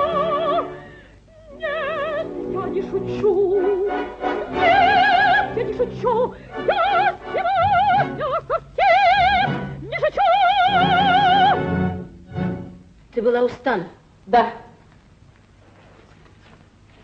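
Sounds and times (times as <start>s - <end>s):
soprano singing operatically: 0.0s - 11.8s
orchestra playing: 10.7s - 12.9s.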